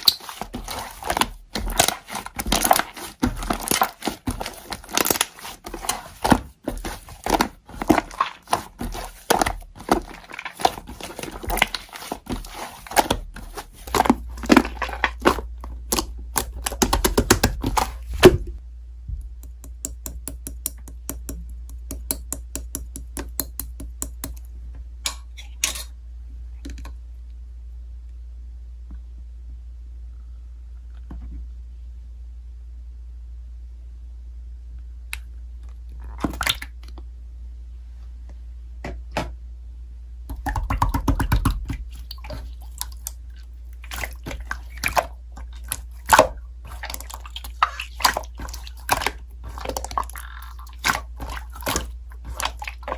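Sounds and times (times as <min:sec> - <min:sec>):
steady low hum: 0:00.0 - 0:36.2.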